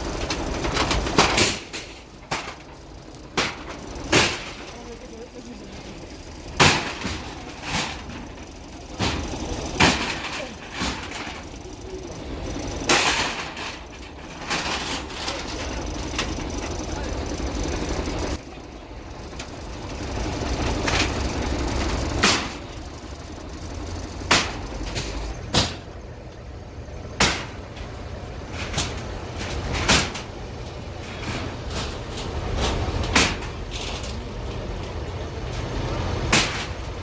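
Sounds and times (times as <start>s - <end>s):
sharp bangs and clanks: 0.0s - 25.9s
heavy machine rumbling: 0.0s - 37.0s.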